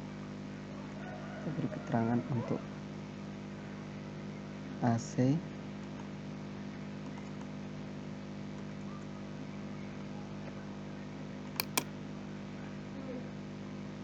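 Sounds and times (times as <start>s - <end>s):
computer clicks: 11.6s - 11.9s.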